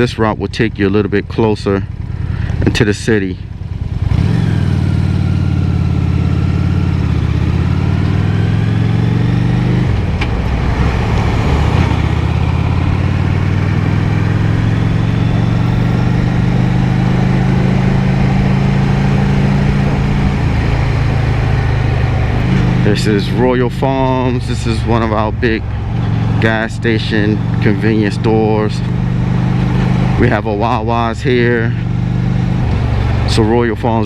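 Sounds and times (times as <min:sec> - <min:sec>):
motorcycle engine running: 0:00.0 - 0:34.0
road and wind noise: 0:00.0 - 0:34.0.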